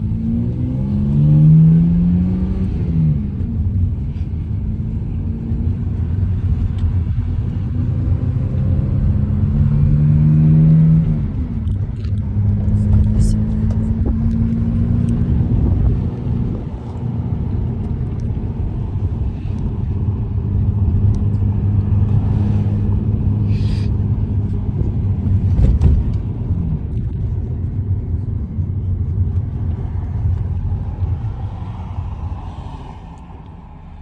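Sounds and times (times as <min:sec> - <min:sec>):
car interior rumble while driving: 0:00.0 - 0:34.0.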